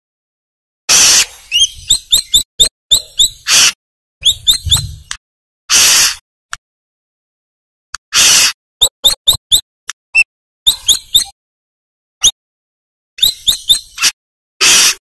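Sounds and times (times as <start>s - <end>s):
harsh rasping bird notes: 0.9s - 5.1s, 5.7s - 6.2s, 8.1s - 9.6s, 13.2s - 15.0s
bird chirping: 1.2s - 5.1s, 10.2s - 11.3s, 13.2s - 14.1s.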